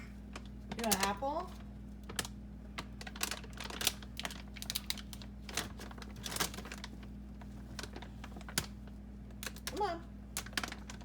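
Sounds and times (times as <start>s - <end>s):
refrigerator low hum: 0.0s - 11.0s
packaging clicks and rustles: 2.0s - 8.8s, 10.4s - 11.0s.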